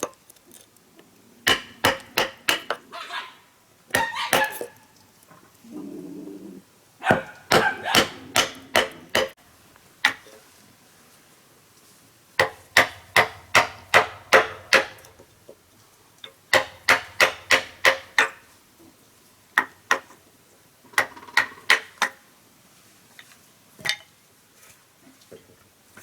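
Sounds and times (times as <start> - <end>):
hand tool striking wood: 1.4 - 2.9, 3.9 - 4.7, 7.1 - 9.4, 12.4 - 15.2, 16.5 - 18.4.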